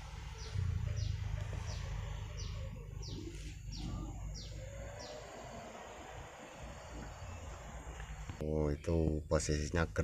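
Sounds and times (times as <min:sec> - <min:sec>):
low rumble: 0:00.0 - 0:04.6
bird chirping: 0:00.0 - 0:09.9.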